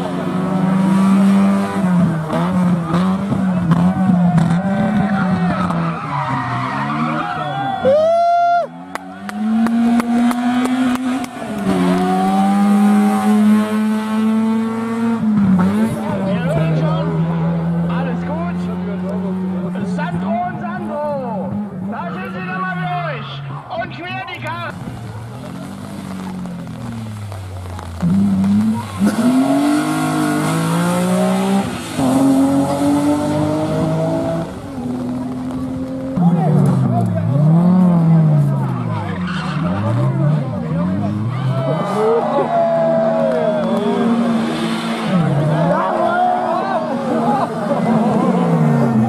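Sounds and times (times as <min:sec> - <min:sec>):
rally car engine at high revs: 0:00.0 - 0:07.3, 0:08.9 - 0:22.0, 0:24.7 - 0:49.0
exhaust pops: 0:24.4 - 0:32.4, 0:33.6 - 0:37.4.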